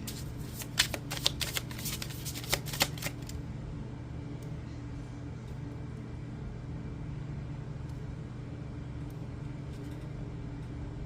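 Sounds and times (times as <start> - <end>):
cards shuffled by hand: 0.0 - 3.4
low steady hum: 0.0 - 11.0.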